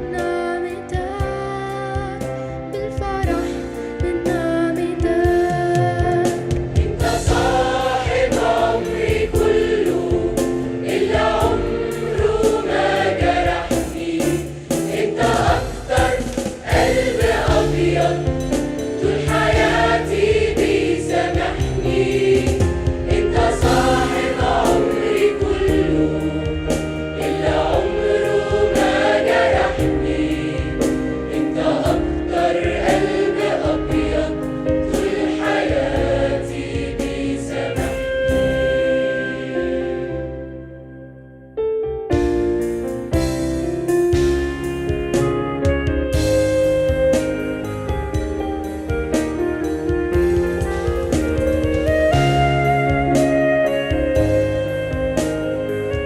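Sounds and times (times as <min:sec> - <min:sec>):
instrumental backing: 0:00.0 - 0:56.0
choir singing a hymn: 0:06.2 - 0:40.7.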